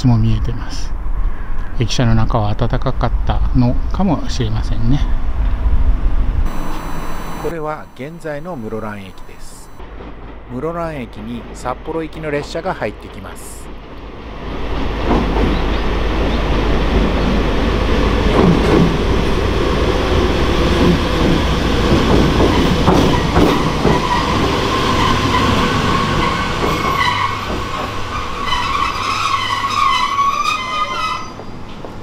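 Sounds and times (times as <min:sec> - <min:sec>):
high brake squeal: 0:06.5 - 0:09.8, 0:24.0 - 0:31.7
train rumble: 0:07.3 - 0:32.0
wheels clanking over rail joints: 0:20.6 - 0:32.0.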